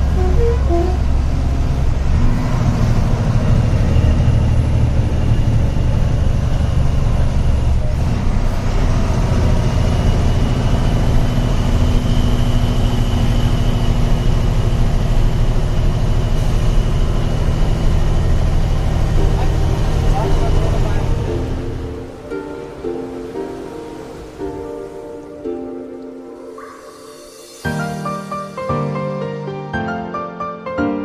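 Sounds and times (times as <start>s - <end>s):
diesel truck engine running: 0.0s - 22.2s.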